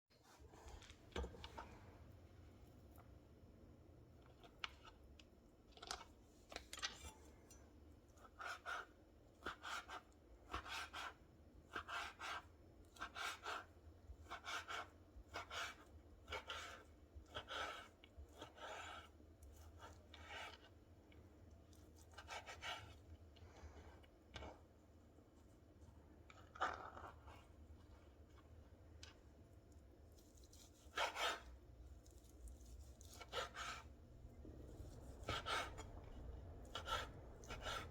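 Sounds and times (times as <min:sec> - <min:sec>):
scraping strokes in food preparation: 0:06.3 - 0:37.9.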